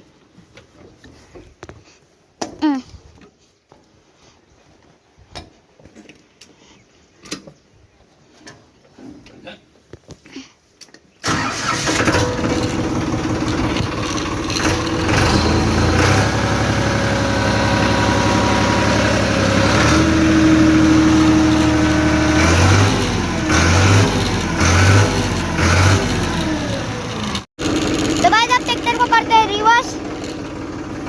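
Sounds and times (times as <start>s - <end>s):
tractor engine starting and running: 11.2s - 31.0s.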